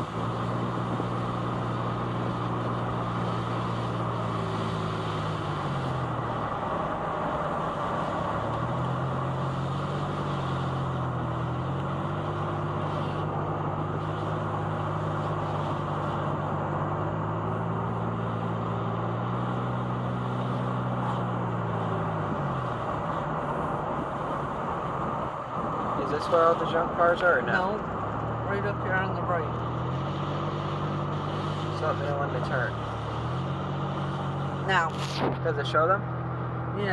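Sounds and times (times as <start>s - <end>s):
car engine: 0.0s - 36.9s
tyres on road: 0.0s - 36.9s.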